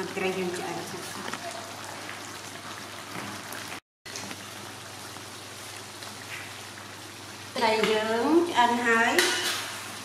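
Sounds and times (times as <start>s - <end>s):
fish sizzling in a wok: 3.1s - 10.0s.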